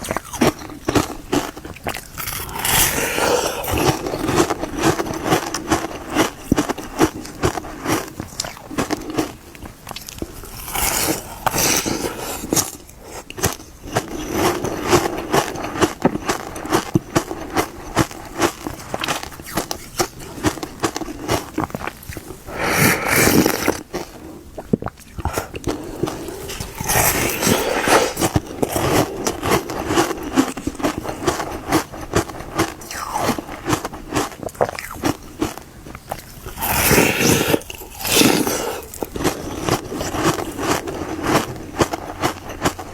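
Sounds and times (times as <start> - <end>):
crunching frozen ice: 0.0 - 24.2, 25.1 - 42.9.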